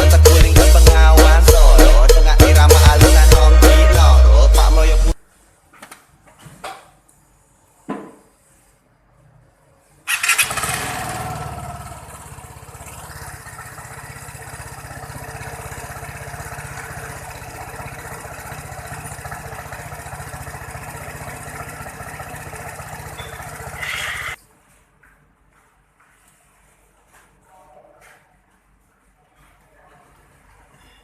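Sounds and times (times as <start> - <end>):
scooter engine starting and idling: 10.1 - 24.4.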